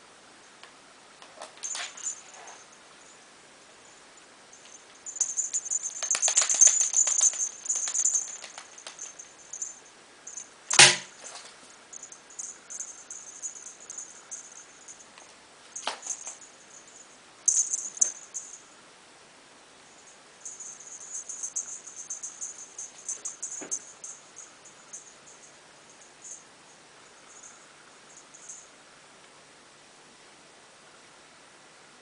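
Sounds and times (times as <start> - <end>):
rapid clicking: 5.1 - 9.7
sharp knock: 10.7 - 11.1.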